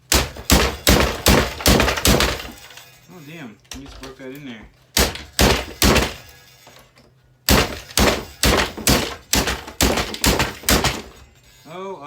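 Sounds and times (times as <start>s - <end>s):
heavy blows smashing boombox: 0.0s - 2.8s, 4.9s - 6.4s, 7.5s - 11.4s.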